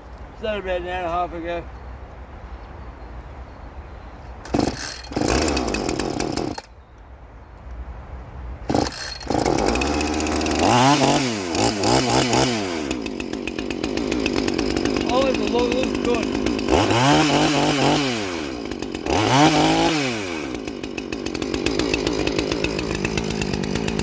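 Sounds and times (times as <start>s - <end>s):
chainsaw starting and revving: 4.4s - 6.7s, 8.7s - 24.0s.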